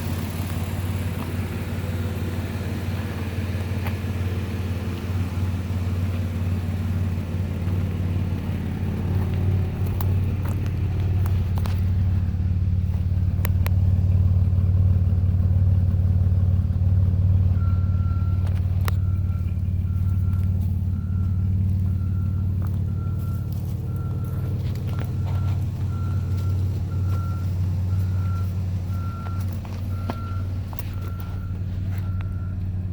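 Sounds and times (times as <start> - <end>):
car engine idling: 0.0 - 32.9
reversing alarm beeping: 17.5 - 32.9.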